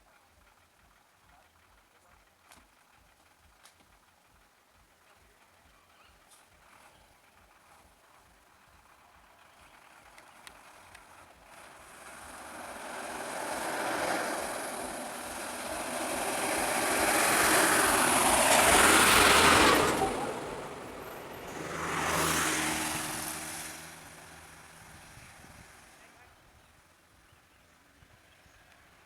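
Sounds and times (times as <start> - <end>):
vehicles passing on road: 7.3 - 29.0.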